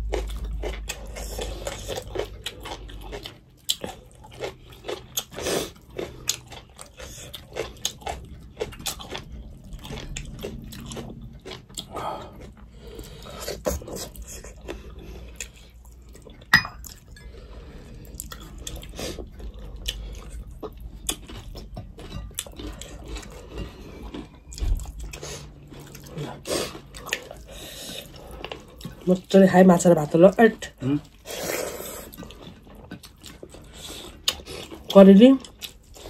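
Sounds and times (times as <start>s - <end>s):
chewing and mouth clicks: 0.0s - 29.4s, 30.1s - 36.0s
ceramic bowl clink: 16.5s - 17.0s.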